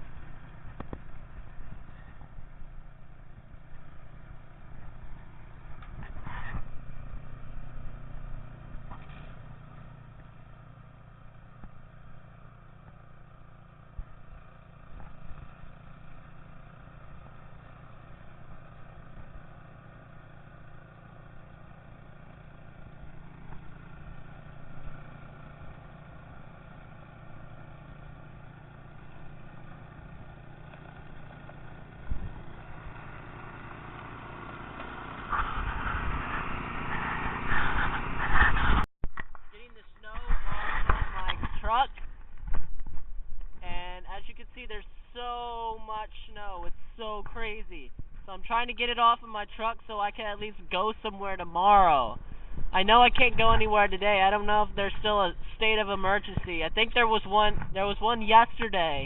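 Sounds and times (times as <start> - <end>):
engine idling: 0.0 - 59.0
short knocks and scrapes: 35.3 - 38.9, 40.1 - 43.6.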